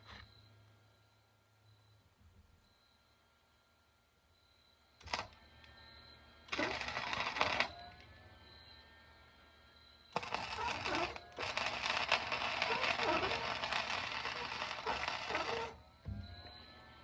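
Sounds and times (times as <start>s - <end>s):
arc welding crackling sizzle: 5.0s - 5.4s, 6.5s - 7.8s, 10.2s - 15.8s.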